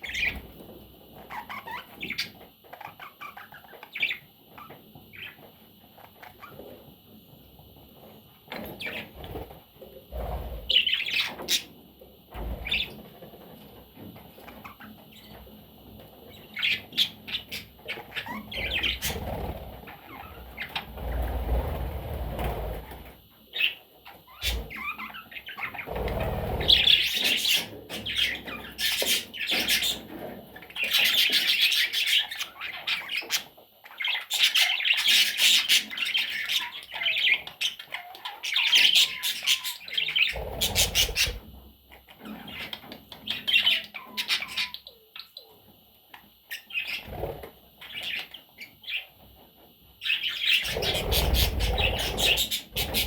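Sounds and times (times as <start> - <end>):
budgerigar chirping and warbling: 34.1 - 41.4, 42.3 - 45.4, 50.1 - 53.0.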